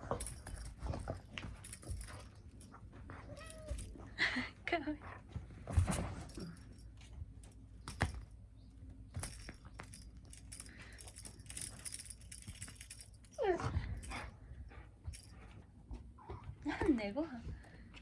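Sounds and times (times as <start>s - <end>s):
jingling: 0.0s - 15.6s.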